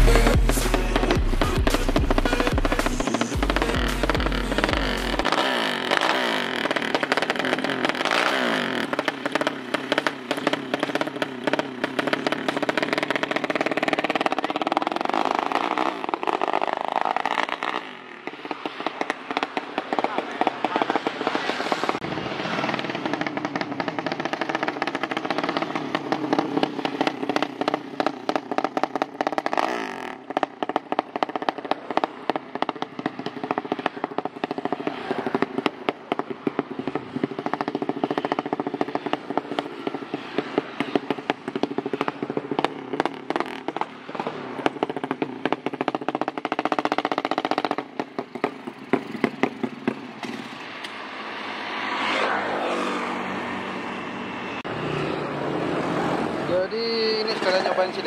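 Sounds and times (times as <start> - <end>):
motorcycle engine revving with crackle: 0.0 - 53.4.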